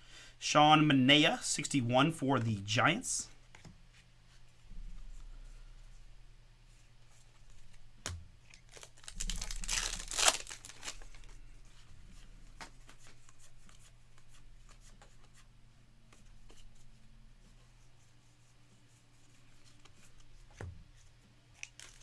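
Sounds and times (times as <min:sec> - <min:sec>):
cards being handled: 0:07.3 - 0:11.3
wrapper tearing and crinkling: 0:08.6 - 0:11.3, 0:21.6 - 0:22.0.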